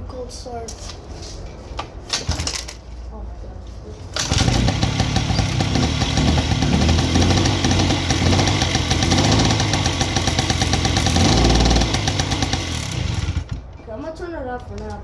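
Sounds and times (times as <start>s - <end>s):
two-stroke moped engine idling: 4.2s - 13.6s.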